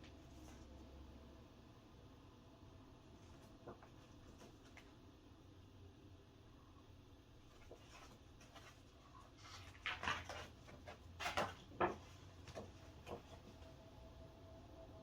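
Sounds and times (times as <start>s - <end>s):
faint low hum: 0.0s - 15.0s
paper and packaging rustling: 7.5s - 13.7s.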